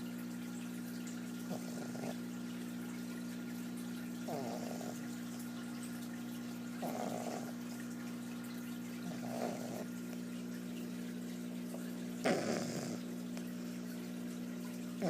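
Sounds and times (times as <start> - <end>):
puppy snoring: 1.4 - 2.3, 4.2 - 5.2, 6.8 - 7.8, 9.0 - 10.2, 12.2 - 13.8.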